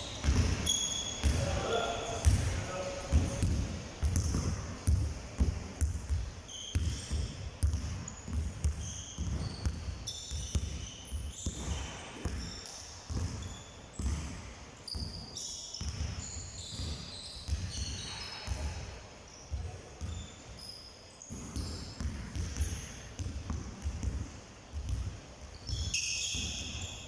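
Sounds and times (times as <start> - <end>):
short high squeaks: 0.0 - 1.3
basketballs bouncing on hard floor: 0.2 - 1.6, 2.2 - 18.8, 19.5 - 20.3, 21.3 - 26.9.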